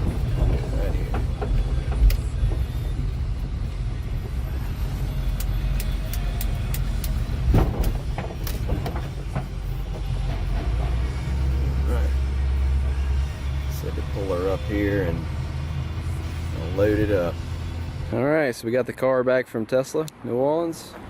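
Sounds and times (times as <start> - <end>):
motor vehicle low rumble: 0.0 - 19.0
loud thump: 7.5 - 9.5.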